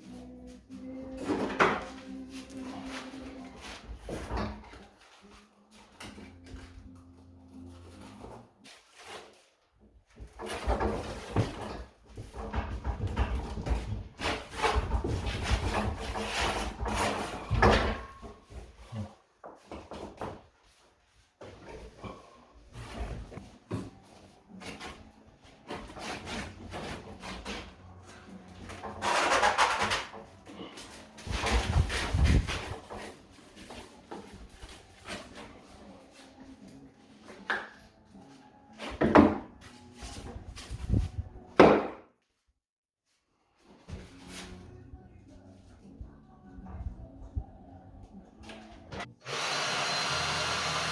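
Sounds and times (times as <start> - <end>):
hand tools knocking and scraping: 10.2 - 18.7, 22.8 - 37.9.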